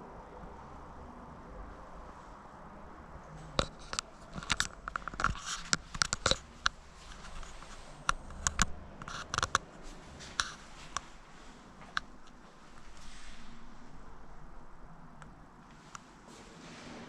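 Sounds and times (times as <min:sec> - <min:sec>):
faint steady background noise: 0:00.0 - 0:17.0
sharp clicks and taps: 0:03.6 - 0:09.7.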